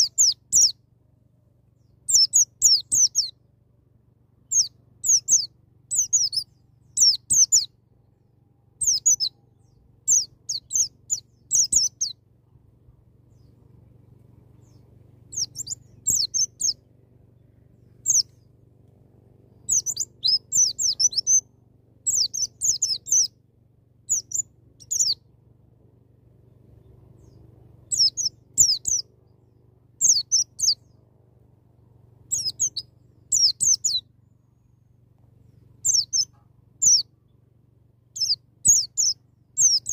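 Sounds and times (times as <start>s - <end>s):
bird rapid chirping: 0.0s - 0.8s, 2.1s - 3.3s, 4.5s - 7.7s, 8.8s - 12.2s, 14.5s - 16.9s, 18.0s - 18.5s, 19.6s - 21.5s, 22.1s - 23.4s, 24.1s - 25.2s, 27.2s - 29.1s, 30.0s - 30.8s, 32.3s - 34.0s, 35.8s - 37.1s, 38.2s - 39.9s
faint low hum: 0.0s - 39.9s.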